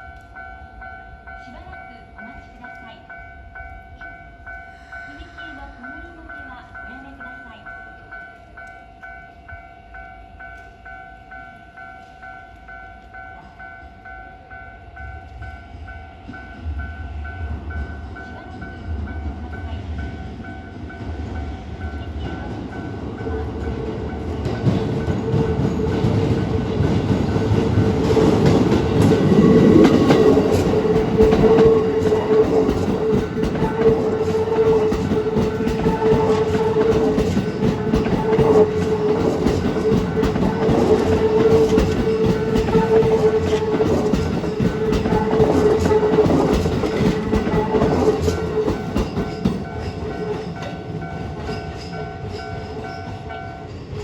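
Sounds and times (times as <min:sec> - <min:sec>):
level crossing warning bell: 0:00.0 - 0:54.0
train wheels clattering over rail joints: 0:23.6 - 0:54.0.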